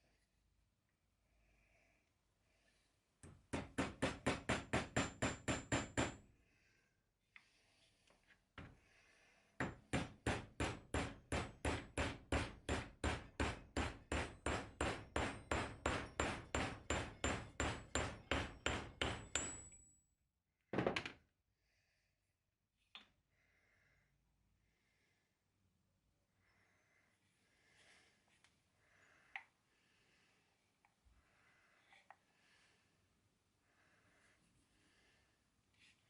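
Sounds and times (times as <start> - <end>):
hammer striking metal: 10.3 - 19.7.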